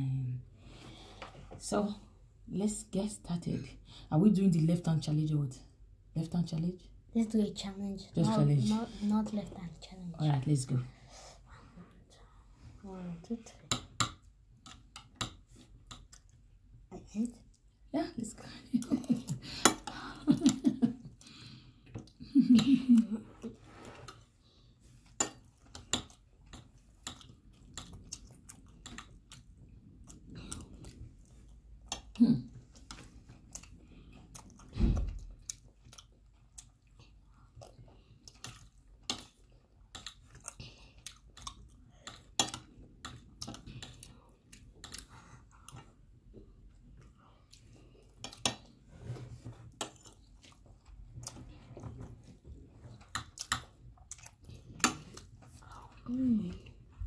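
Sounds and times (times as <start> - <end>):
people chewing rice: 13.7 - 16.8, 18.8 - 57.0.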